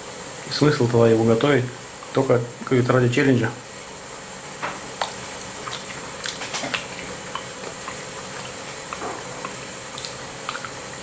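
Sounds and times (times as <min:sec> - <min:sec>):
steady hiss: 0:00.0 - 0:11.0
person chewing: 0:04.9 - 0:11.0.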